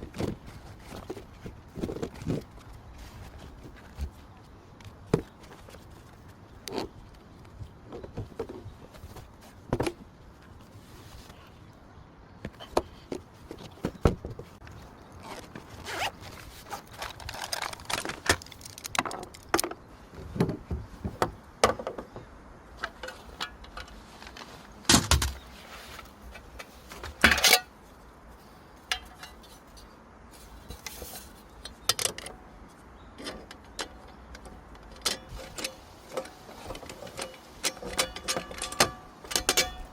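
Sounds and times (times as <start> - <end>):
rustling: 0.0 - 11.7, 12.6 - 21.2, 22.8 - 31.9.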